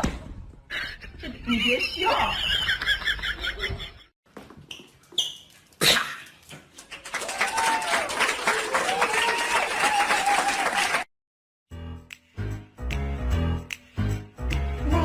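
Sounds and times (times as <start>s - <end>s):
crowd applauding: 6.8s - 11.1s.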